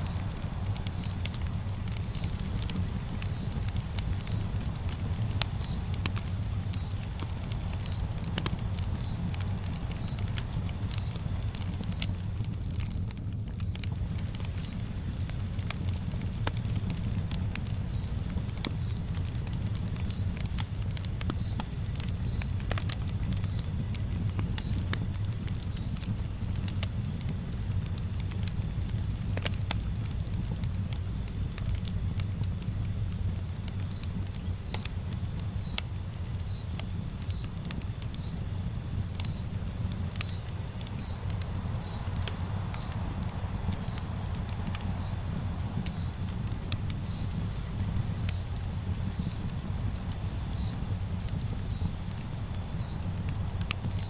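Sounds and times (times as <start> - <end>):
campfire crackling: 0.0 - 54.0.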